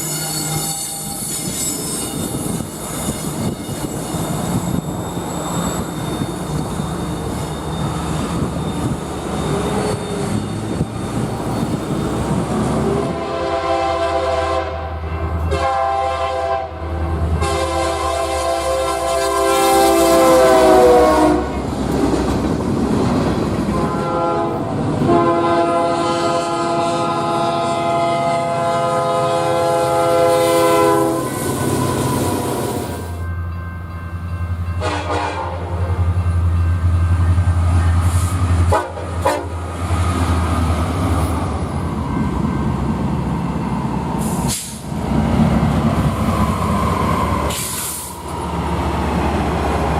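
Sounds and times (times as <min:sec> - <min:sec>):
train rumbling: 0:00.0 - 0:49.9
locomotive air horn: 0:12.8 - 0:21.7, 0:23.7 - 0:32.5, 0:34.8 - 0:36.0, 0:38.1 - 0:39.6.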